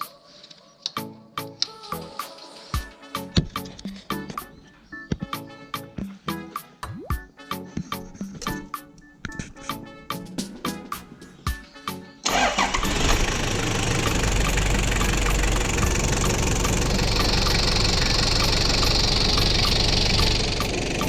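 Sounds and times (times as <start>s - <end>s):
diesel engine starting and idling: 12.2s - 21.0s.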